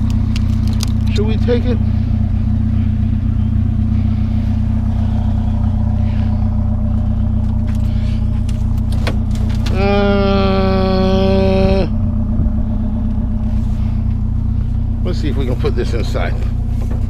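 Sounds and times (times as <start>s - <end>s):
sharp clicks: 0.0s - 1.2s
truck engine idling: 0.0s - 17.0s.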